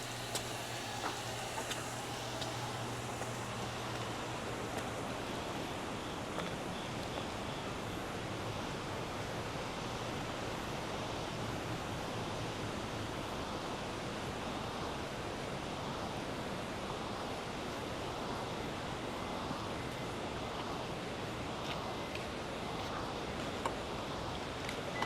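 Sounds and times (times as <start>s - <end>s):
river water rushing: 0.0s - 6.7s.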